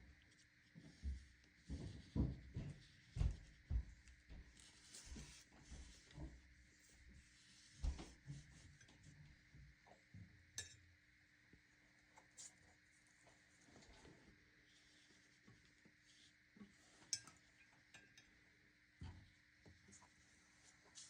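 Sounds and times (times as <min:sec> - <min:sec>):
brush on paper: 0:00.2 - 0:09.1, 0:12.2 - 0:17.2, 0:19.8 - 0:21.0.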